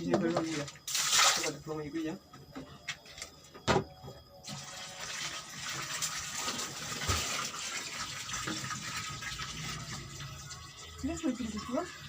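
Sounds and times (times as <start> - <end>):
water running from tap: 4.5 - 12.0.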